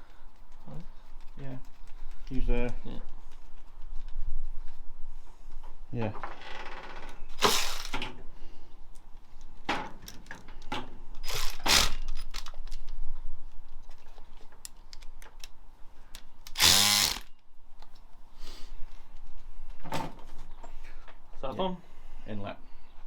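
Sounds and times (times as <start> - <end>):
tools and metal parts clattering: 9.7 - 12.8
socket ratchet clicking: 11.2 - 12.6, 16.5 - 17.3.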